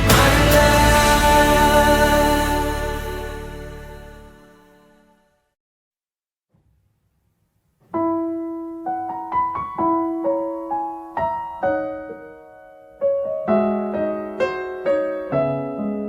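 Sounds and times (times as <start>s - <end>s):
slow gentle piano melody: 7.9s - 16.0s.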